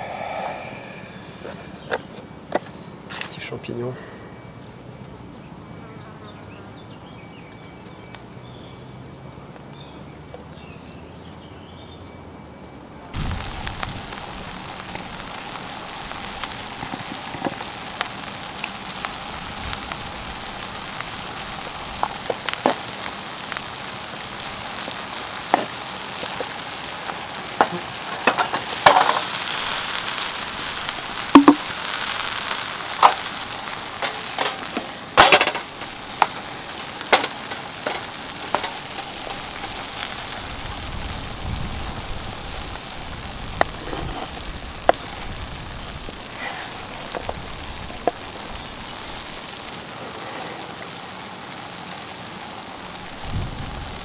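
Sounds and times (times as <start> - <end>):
mushrooms sizzling in a pan: 0.0 - 5.0, 13.1 - 54.0
fire pops and crackles: 13.1 - 54.0.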